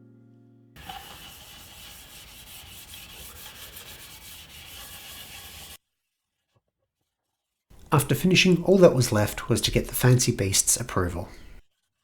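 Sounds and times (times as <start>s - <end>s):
rubbing on wood: 0.8s - 5.8s.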